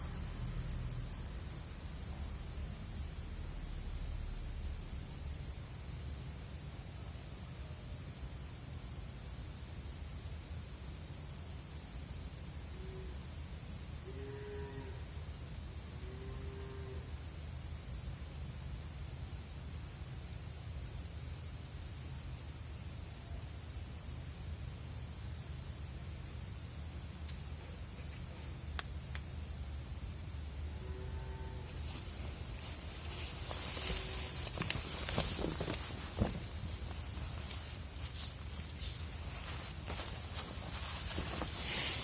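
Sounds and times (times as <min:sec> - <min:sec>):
crickets trilling: 0:00.0 - 0:10.4, 0:11.3 - 0:42.0
insect chirps: 0:00.0 - 0:42.0.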